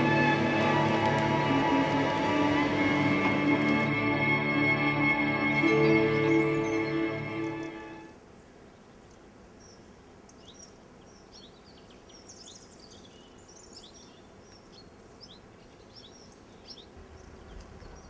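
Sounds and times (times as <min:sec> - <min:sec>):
faint outdoor background: 0:00.0 - 0:18.0
small birds chirping: 0:05.6 - 0:18.0.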